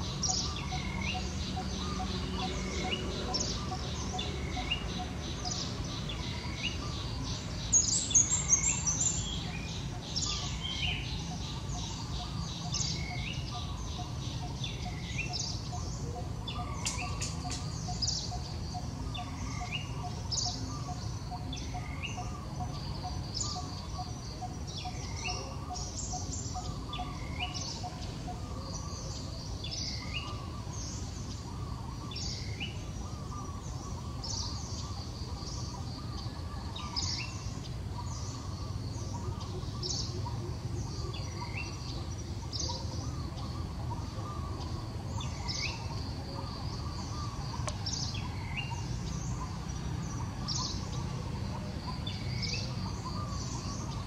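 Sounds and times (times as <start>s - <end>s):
forest birds calling: 0.0s - 54.0s.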